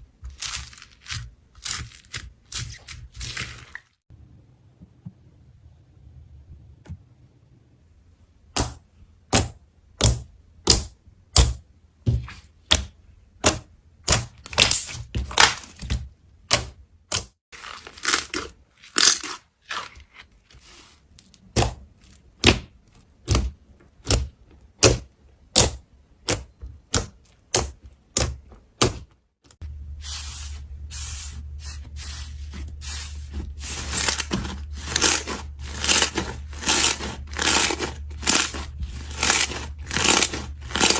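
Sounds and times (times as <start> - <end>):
steady low hum: 29.6 - 40.9.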